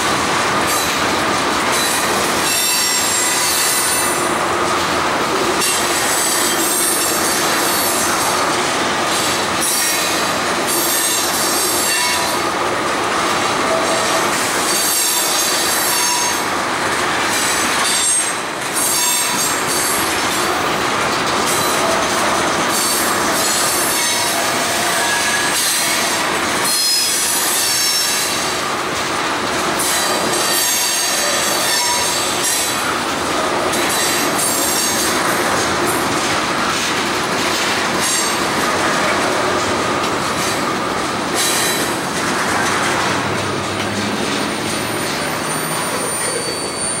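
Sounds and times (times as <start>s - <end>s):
train wheels rumbling on rail: 0.0s - 47.0s
wheel squeals: 17.4s - 20.1s, 22.7s - 28.3s, 44.3s - 47.0s.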